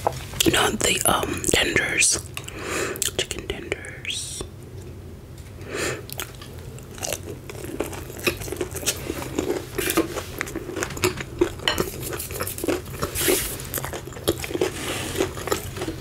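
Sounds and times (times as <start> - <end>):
crunchy chewing: 6.0 - 16.0.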